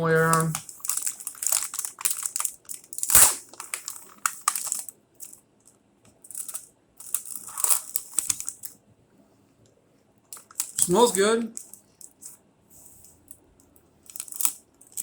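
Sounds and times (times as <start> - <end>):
plastic package crinkling: 0.2 - 5.4, 6.3 - 8.8, 10.3 - 12.2, 14.1 - 15.0.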